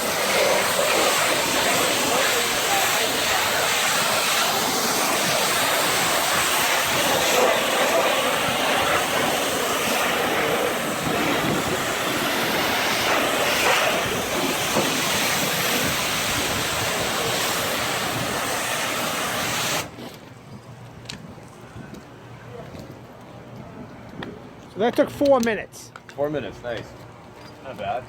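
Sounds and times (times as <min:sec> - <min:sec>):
pressure washer spraying water: 0:00.0 - 0:20.1.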